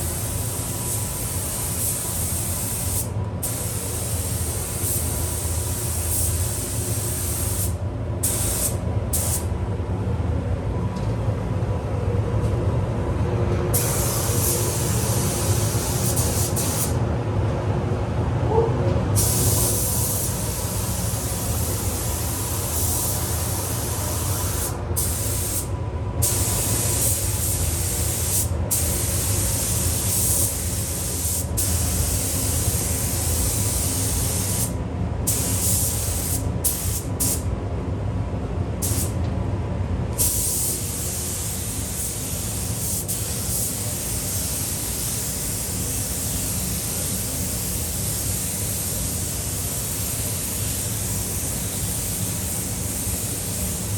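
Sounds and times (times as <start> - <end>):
spray booth fan running: 0.0 - 53.9
paint spray gun hissing: 0.2 - 9.4, 13.8 - 17.0, 19.2 - 34.7, 40.2 - 53.9.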